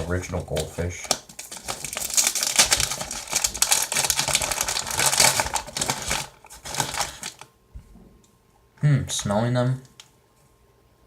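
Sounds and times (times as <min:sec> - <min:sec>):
plastic snack bag crinkling: 0:00.0 - 0:07.5.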